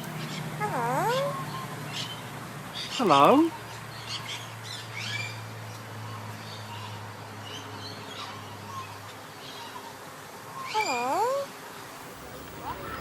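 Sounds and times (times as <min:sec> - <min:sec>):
birds chirping: 0:00.0 - 0:13.0
steady low hum: 0:11.7 - 0:13.0.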